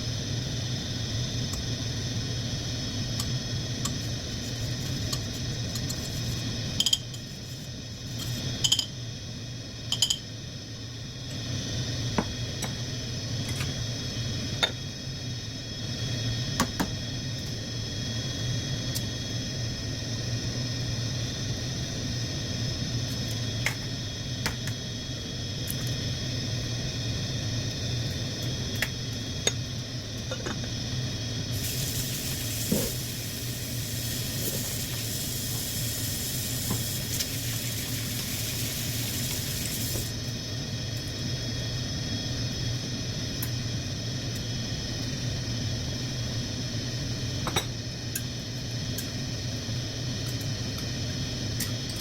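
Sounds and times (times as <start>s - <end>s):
electrical hum with high whine: 0.0s - 52.0s.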